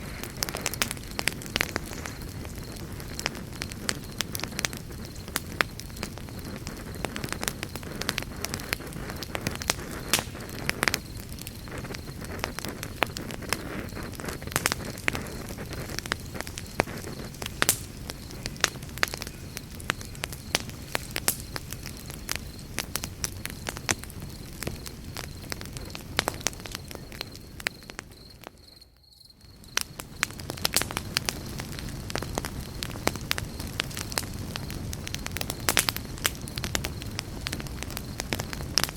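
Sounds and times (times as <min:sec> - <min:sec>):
burning wood crackling and popping: 0:00.0 - 0:38.9
campfire low rush: 0:00.0 - 0:38.9.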